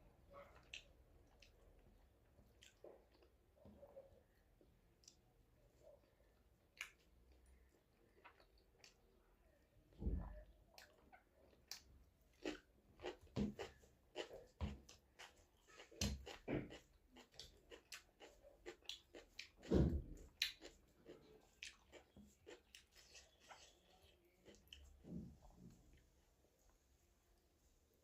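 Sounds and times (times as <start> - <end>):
lip smacks and mouth clicks: 6.7 - 7.5
wet chewing: 10.7 - 25.0.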